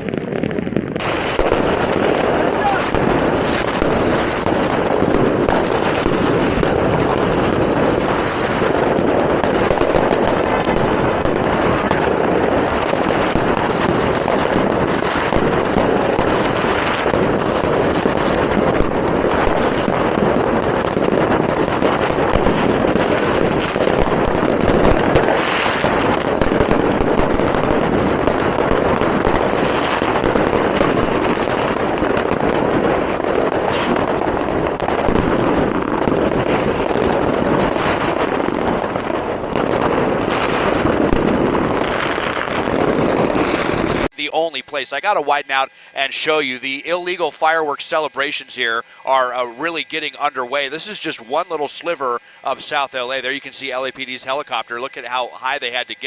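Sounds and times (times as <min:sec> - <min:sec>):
fireworks and firecrackers banging: 0:00.0 - 0:56.0.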